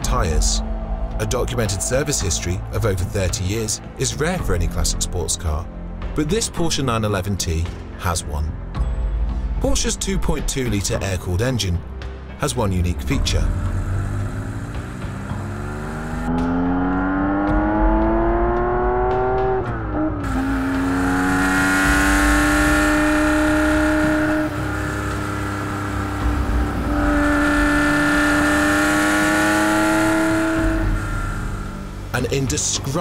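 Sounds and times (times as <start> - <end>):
car engine revving: 12.7 - 33.0.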